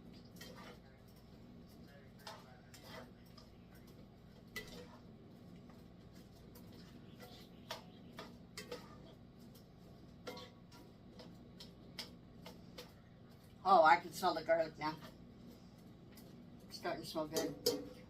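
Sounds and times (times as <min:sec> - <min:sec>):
low steady hum: 0:00.0 - 0:18.0
utensil clinking on pan and jar: 0:10.2 - 0:13.5, 0:17.0 - 0:18.0.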